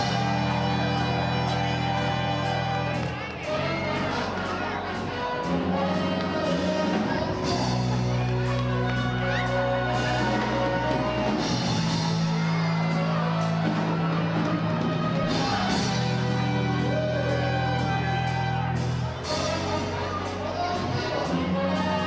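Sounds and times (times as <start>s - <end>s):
live band with horn section: 0.0s - 22.0s.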